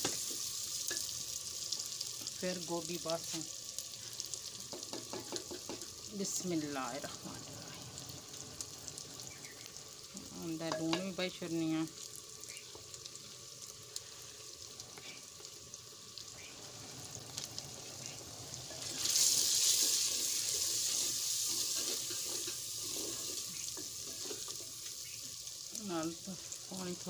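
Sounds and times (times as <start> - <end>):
masala sizzling in a pot: 0.0 - 27.0
loud steam hiss: 16.5 - 24.6
wooden spoon stirring: 18.7 - 24.8.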